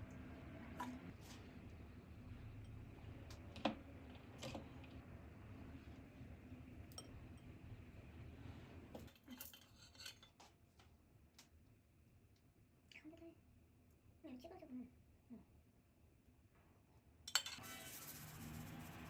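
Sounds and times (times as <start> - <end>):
cutlery clinking against dishes: 9.0 - 10.4, 17.3 - 17.7.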